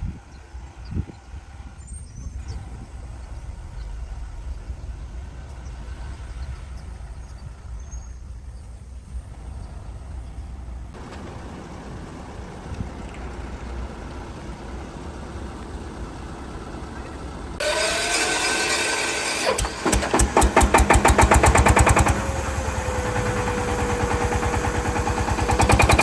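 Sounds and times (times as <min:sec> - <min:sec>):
steady low rumble: 0:00.0 - 0:17.6.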